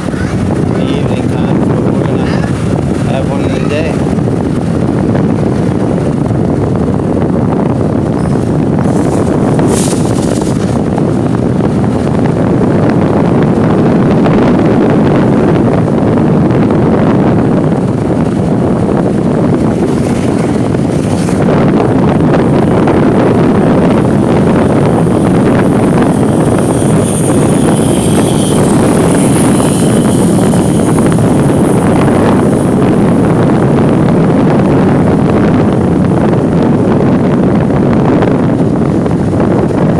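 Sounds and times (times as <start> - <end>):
motorbike engine and road noise: 0.0 - 39.9
wind buffeting microphone: 0.0 - 39.9
high-pitched traffic sounds: 22.5 - 33.5.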